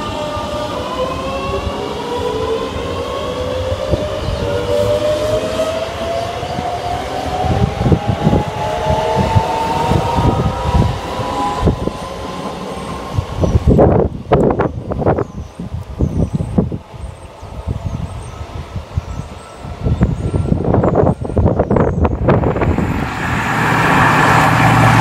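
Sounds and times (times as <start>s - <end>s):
low rumble: 21.9s - 25.0s.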